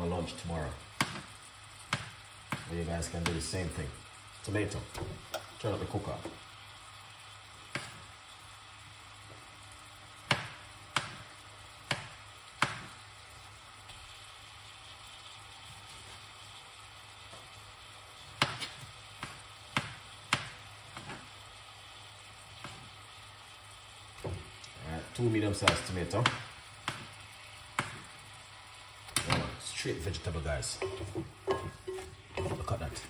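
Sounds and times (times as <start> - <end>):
vegetables sizzling in a pot: 0.0 - 33.0
sharp kitchen knocks: 30.8 - 32.7.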